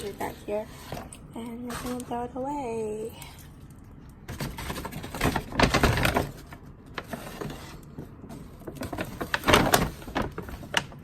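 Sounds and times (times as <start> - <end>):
shopping bag rustling: 4.3 - 11.0.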